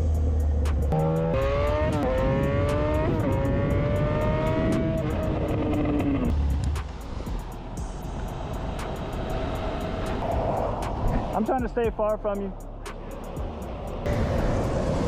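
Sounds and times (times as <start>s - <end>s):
motorcycle engine accelerating: 0.0s - 6.4s.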